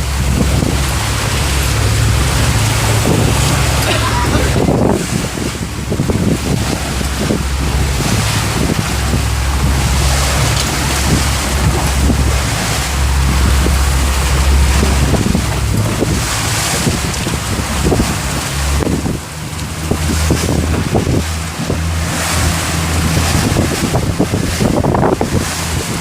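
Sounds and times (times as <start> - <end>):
strong wind on microphone: 0.0 - 26.0
waves washing against hull: 0.0 - 26.0.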